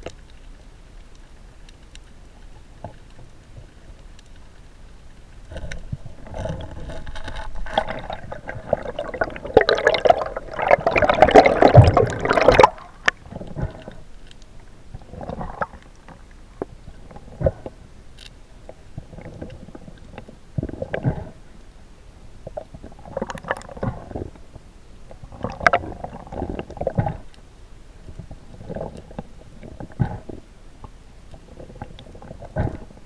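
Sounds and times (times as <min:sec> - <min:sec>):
water gurgling and rushing: 0:06.1 - 0:14.0.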